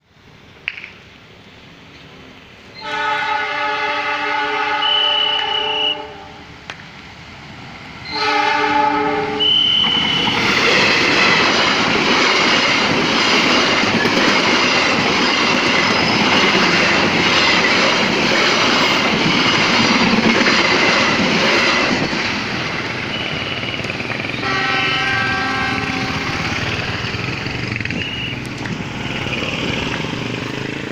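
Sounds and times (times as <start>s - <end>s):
train wheels rushing past: 2.0s - 30.9s
train horn blast: 2.8s - 6.4s, 8.0s - 10.4s, 23.1s - 26.8s.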